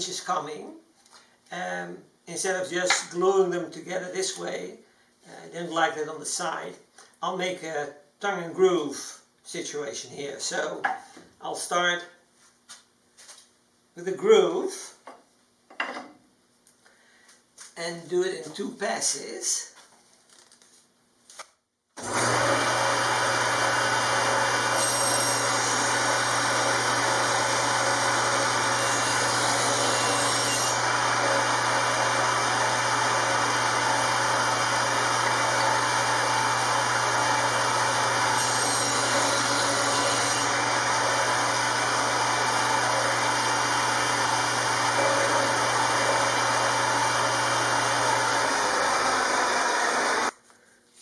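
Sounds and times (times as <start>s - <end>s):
power tool cutting wood: 22.0s - 50.3s.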